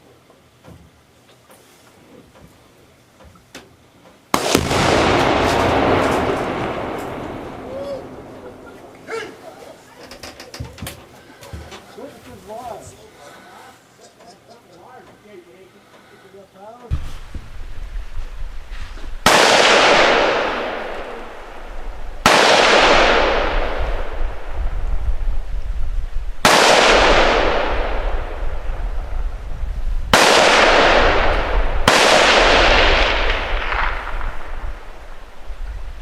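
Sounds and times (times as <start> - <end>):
rifle shots with rolling echo: 4.3 - 9.6, 19.2 - 25.1, 26.4 - 35.6.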